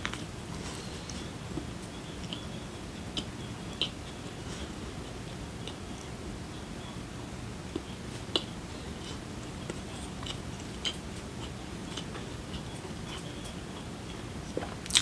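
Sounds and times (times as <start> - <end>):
low room hum: 0.0 - 15.0
person chewing food: 3.1 - 6.2, 7.7 - 15.0.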